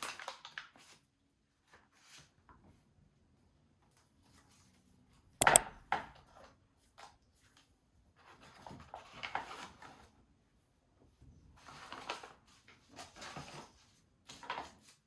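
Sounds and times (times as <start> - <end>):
hard object set down knocking: 5.4 - 5.6.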